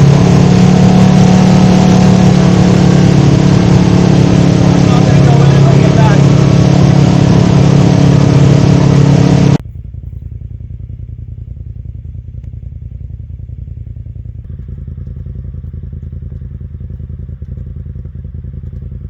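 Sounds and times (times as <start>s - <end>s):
loud sound cutting off: 0.0s - 9.6s
engine low pulsing rumble: 0.0s - 19.0s.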